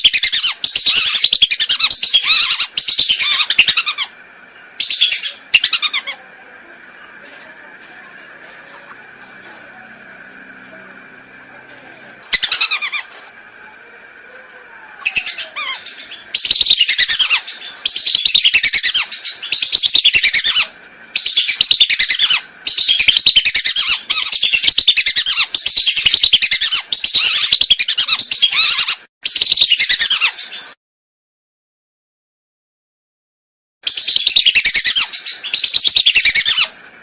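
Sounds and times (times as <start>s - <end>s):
faint high hum: 0.0s - 30.8s
ducks shrill whistling calls: 33.9s - 36.8s.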